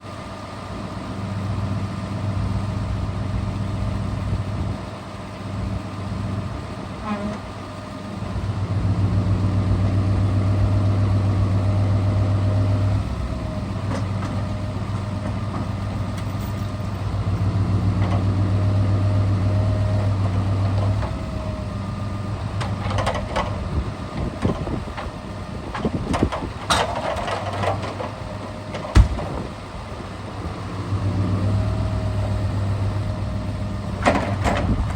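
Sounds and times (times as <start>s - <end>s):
diesel truck engine running: 0.0s - 34.9s
knocks and clatter: 22.6s - 23.6s, 25.7s - 29.5s, 34.0s - 34.9s.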